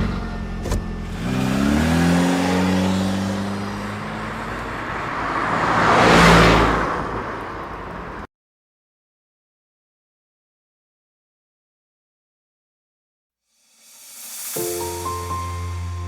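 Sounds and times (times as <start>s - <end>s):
car engine pulling away: 0.0s - 8.3s
vehicle passing by: 0.0s - 8.3s.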